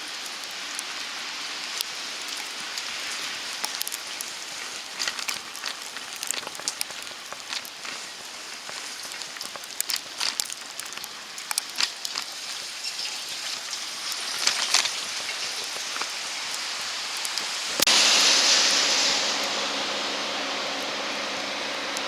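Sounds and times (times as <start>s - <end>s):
loud rush of noise: 16.2s - 22.0s.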